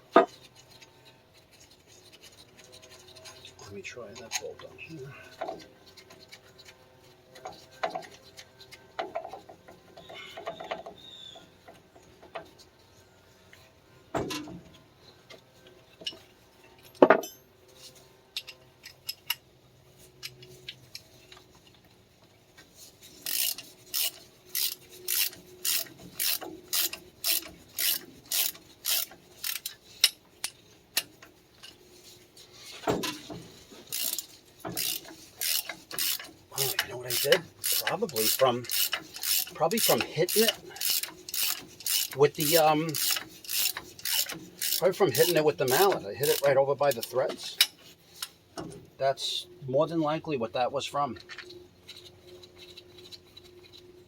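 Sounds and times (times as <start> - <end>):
ratchet wrench clicking: 23.2 - 31.1, 33.9 - 47.7.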